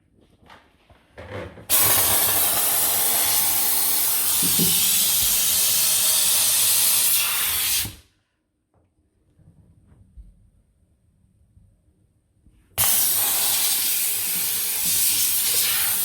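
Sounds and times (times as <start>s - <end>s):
steam cleaner hissing: 1.7s - 8.1s, 12.8s - 16.0s.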